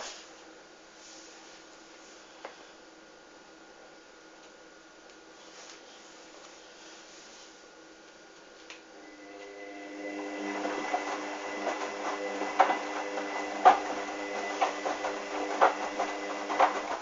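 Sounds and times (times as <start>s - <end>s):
washing machine motor whine: 8.9s - 17.0s.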